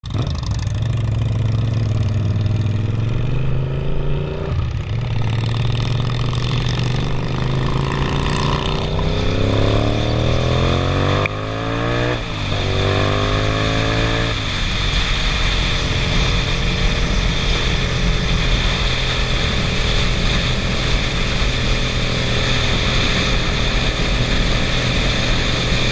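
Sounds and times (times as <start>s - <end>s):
motorcycle accelerating: 0.0s - 25.9s
wind rush over helmet: 5.8s - 25.9s.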